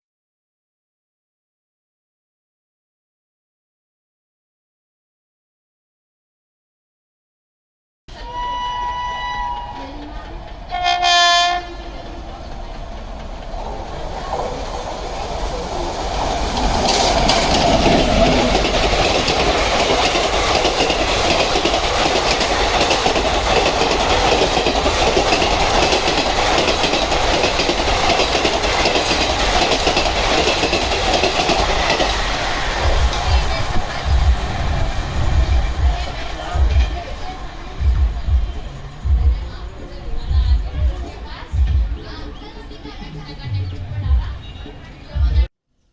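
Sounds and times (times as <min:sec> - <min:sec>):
train horn: 0:08.1 - 0:10.1, 0:10.7 - 0:12.1
train rail rumble and clatter: 0:08.1 - 0:45.5.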